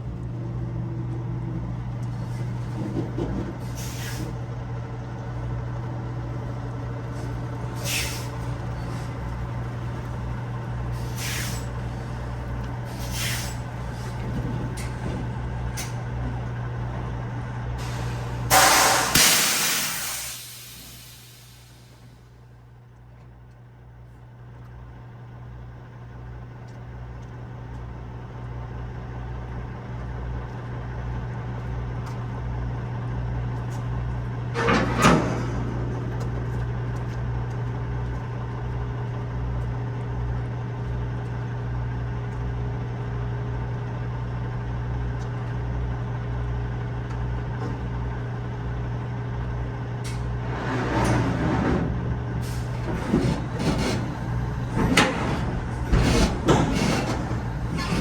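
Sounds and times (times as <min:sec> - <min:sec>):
air hiss: 0:07.8 - 0:08.4, 0:11.0 - 0:11.8, 0:12.9 - 0:13.6, 0:17.8 - 0:22.1
truck diesel engine idling: 0:52.4 - 0:58.0.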